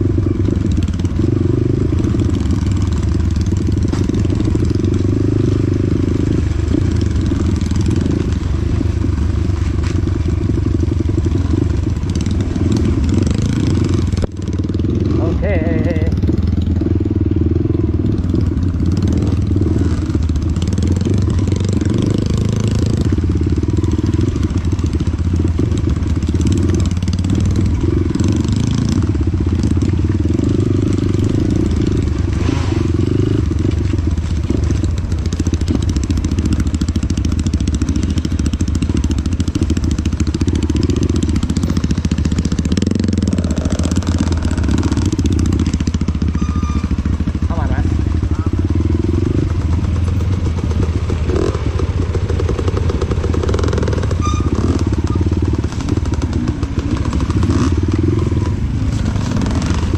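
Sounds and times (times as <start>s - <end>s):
dirt bike engine running: 0.0s - 59.9s.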